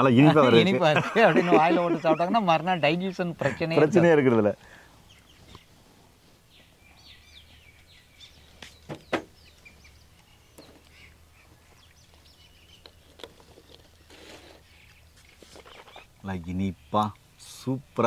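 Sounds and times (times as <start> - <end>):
birds chirping: 0.0 - 18.0
sharp knocks: 8.8 - 9.4.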